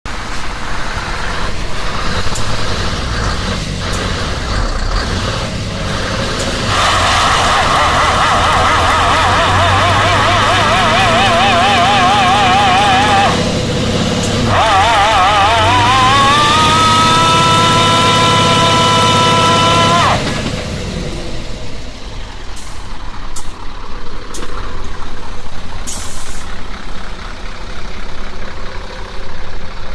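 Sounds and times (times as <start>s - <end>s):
truck diesel engine running hard: 0.0s - 29.9s
spinning tyres hissing: 0.1s - 29.9s
air brake hisses: 22.6s - 23.6s, 25.8s - 26.6s.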